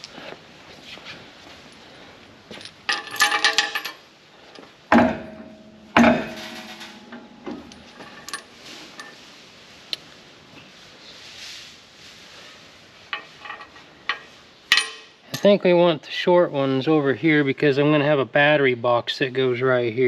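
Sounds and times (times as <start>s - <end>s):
steel bolts jingling: 2.5s - 4.0s, 4.9s - 9.2s, 13.2s - 15.6s
sharp metal clanks: 4.9s - 9.2s, 13.2s - 15.6s.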